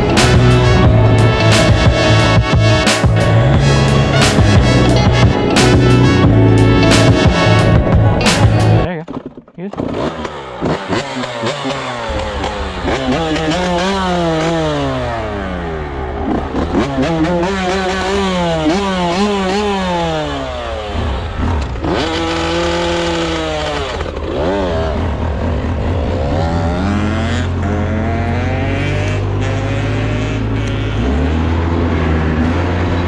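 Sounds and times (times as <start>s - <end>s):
small engine revving: 9.7s - 33.0s.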